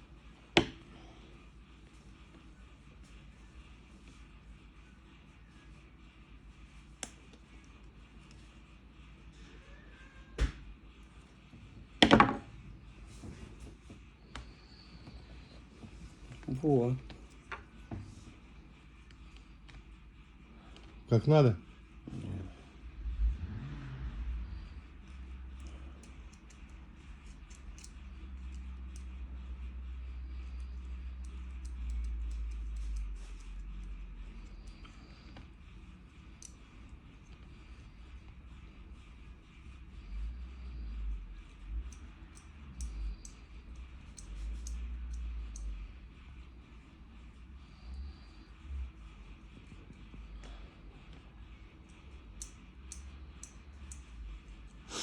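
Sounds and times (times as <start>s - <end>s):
low rumble: 22.0s - 30.5s
small parts clicking and tapping: 25.1s - 29.6s, 30.3s - 35.5s, 36.2s - 37.5s, 41.8s - 45.9s, 51.8s - 54.8s.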